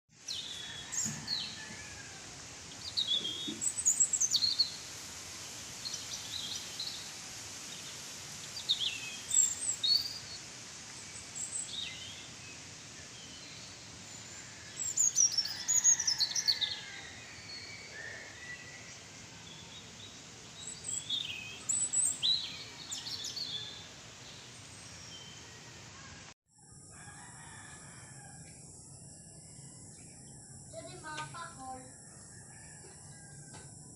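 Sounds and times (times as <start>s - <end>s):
steady background hiss: 0.2s - 26.3s, 26.9s - 33.9s.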